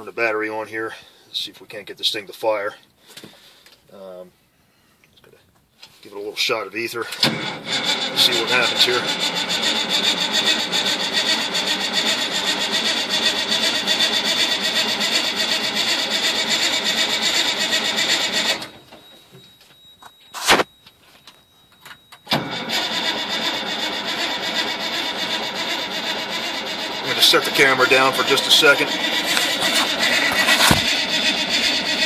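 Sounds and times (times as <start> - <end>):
diesel engine cranking: 7.1 - 19.0, 22.2 - 32.0.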